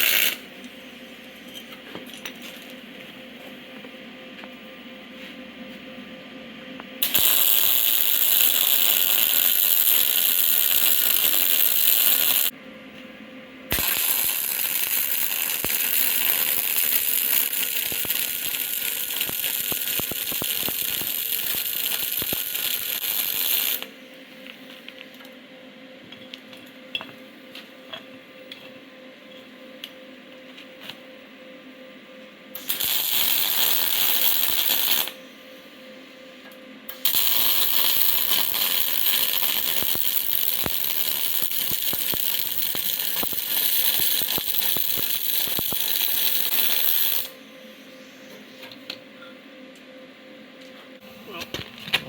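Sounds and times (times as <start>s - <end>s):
welder crackling sizzle: 0.0s - 0.5s, 7.0s - 12.5s, 13.7s - 23.9s, 32.6s - 35.2s, 36.9s - 47.4s
spatter pops: 13.7s - 14.3s.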